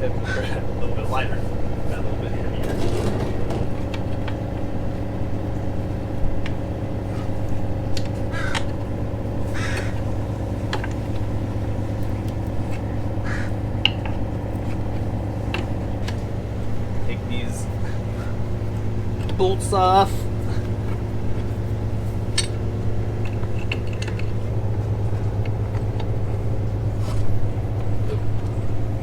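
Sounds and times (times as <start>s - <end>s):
engine drone: 0.0s - 29.0s.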